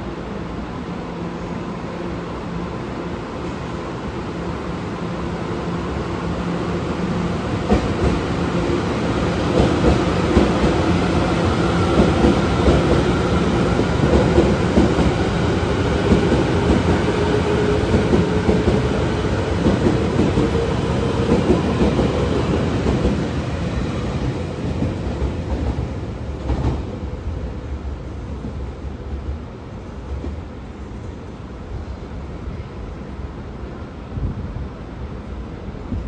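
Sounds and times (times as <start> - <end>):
train whine: 0.0 - 36.0
train wheels on rails: 6.7 - 31.5.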